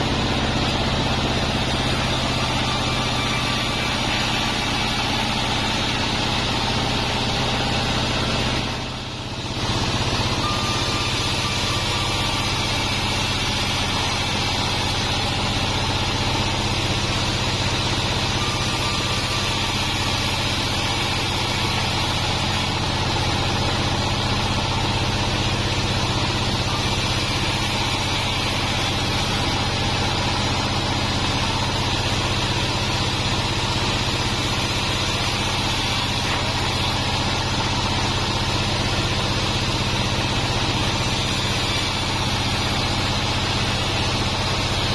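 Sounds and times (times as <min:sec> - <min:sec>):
bandsaw machine humming: 0:00.0 - 0:44.9.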